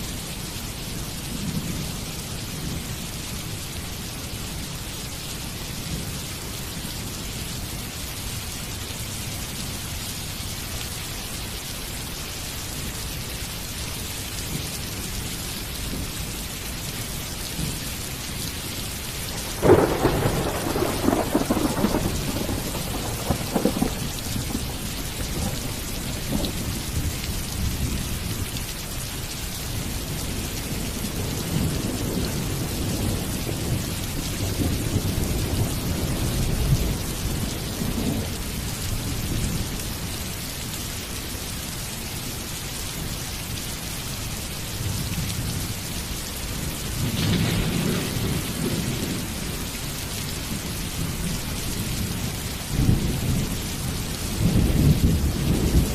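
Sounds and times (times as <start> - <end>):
steady rain falling: 0.0 - 55.9
thunder rumbling: 19.3 - 27.0, 47.0 - 49.6.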